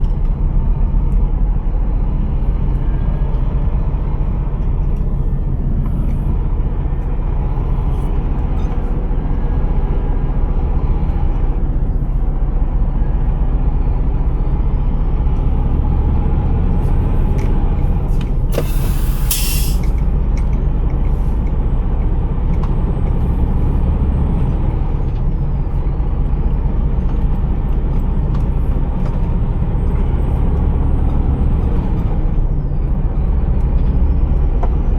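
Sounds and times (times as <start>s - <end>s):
truck engine rumbling: 0.0s - 34.9s
compressed air hiss: 18.6s - 19.9s.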